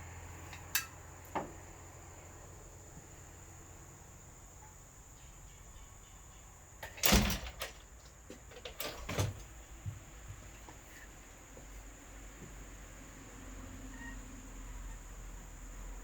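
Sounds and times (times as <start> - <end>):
hard knocks and clatter: 6.8 - 10.0.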